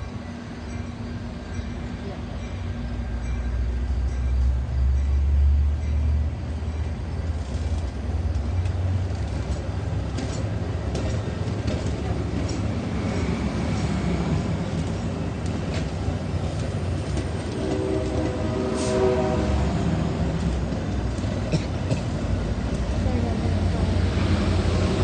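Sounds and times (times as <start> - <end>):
locomotive engine rumble: 0.0 - 25.0
wheel and rail noise: 0.0 - 25.0
train horn: 17.4 - 20.1.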